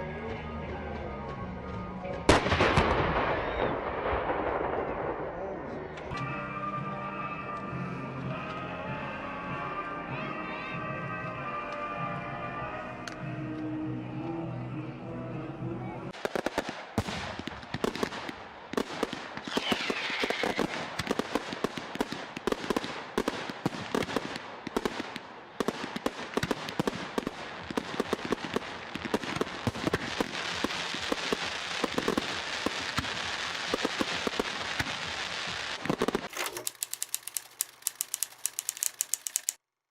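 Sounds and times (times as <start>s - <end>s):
fireworks crackling and banging: 0.8s - 6.3s, 16.1s - 39.6s
whistling firework: 2.3s - 4.7s, 16.2s - 36.3s
fast sharp clicks: 35.9s - 39.6s.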